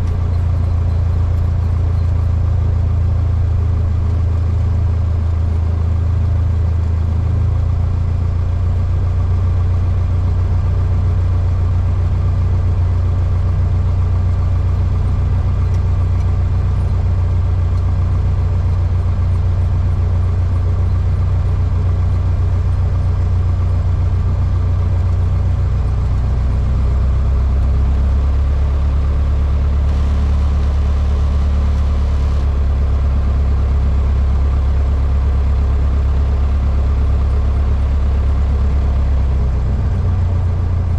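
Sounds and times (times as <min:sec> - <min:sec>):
airplane engine droning: 0:29.8 - 0:33.2.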